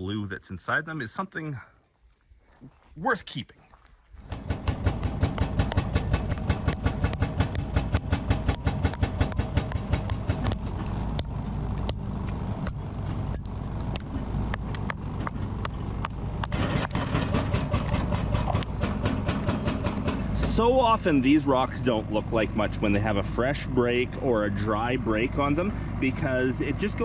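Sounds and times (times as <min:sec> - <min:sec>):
diesel engine drone: 0:04.2 - 0:27.0
hydraulic rock hammer pounding rock: 0:04.3 - 0:11.4, 0:14.8 - 0:20.6.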